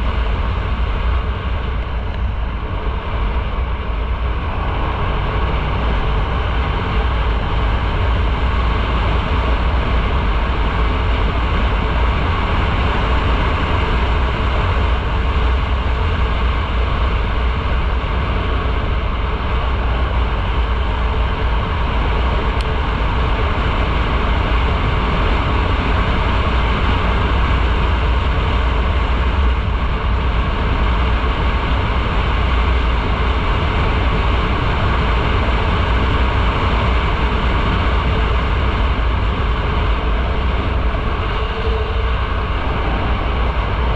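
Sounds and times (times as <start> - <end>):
motorcycle engine and road noise: 0.0 - 43.9
wind rush over microphone: 0.0 - 43.9.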